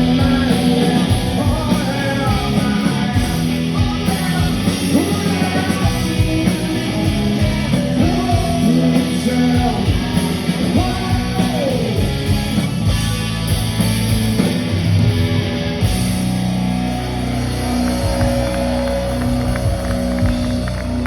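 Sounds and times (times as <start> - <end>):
person singing: 0.0 - 11.9
rock band playing: 0.0 - 21.0.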